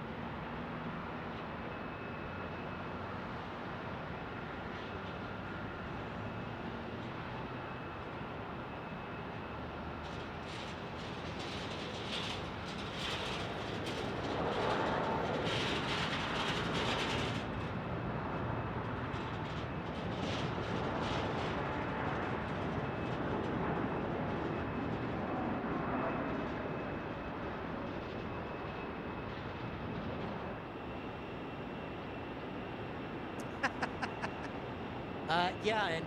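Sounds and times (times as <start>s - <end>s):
jet airliner engines rumbling: 0.0s - 36.0s.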